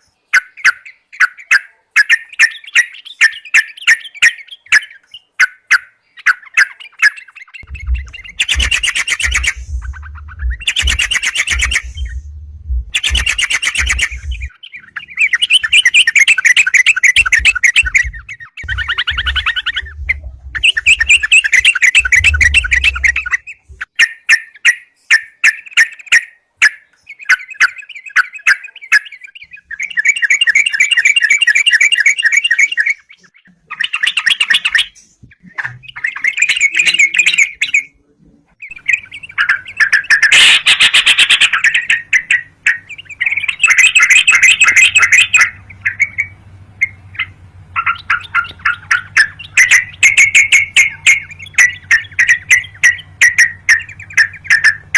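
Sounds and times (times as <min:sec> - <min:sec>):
bulbul singing and chattering: 0:00.0 - 0:38.0, 0:38.6 - 0:54.9.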